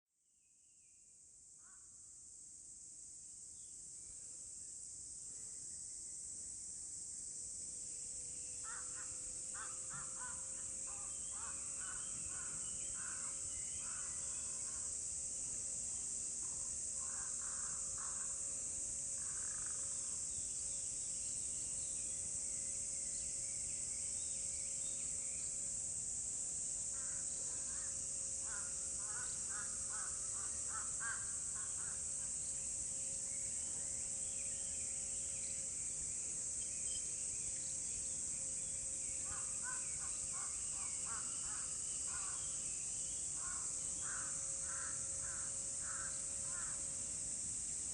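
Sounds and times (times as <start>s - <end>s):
high-pitched hiss: 1.6s - 47.9s
crows cawing: 8.6s - 10.4s, 28.5s - 32.0s, 43.4s - 46.8s.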